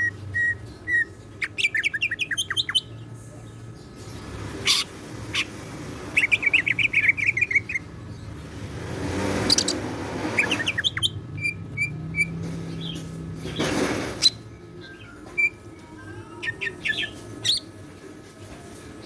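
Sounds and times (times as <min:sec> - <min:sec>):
bird singing chirps and whistles: 0:00.0 - 0:02.9, 0:10.4 - 0:13.0, 0:14.2 - 0:15.7, 0:16.4 - 0:17.7.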